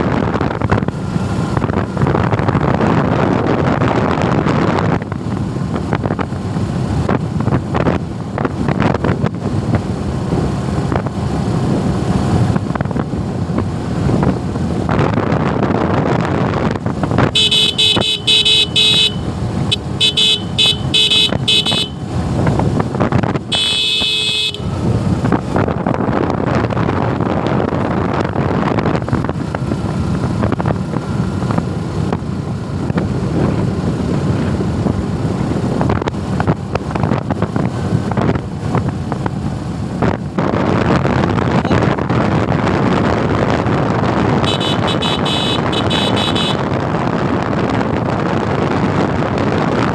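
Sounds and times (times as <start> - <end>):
motorcycle road noise: 0.0 - 49.9
wind rush: 0.0 - 49.9
vehicle horn honking: 17.3 - 22.0, 23.5 - 24.8, 44.4 - 46.7.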